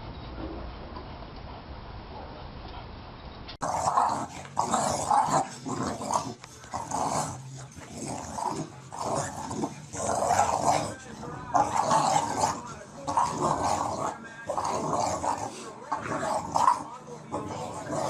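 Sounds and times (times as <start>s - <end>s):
dog growling: 3.6s - 18.0s.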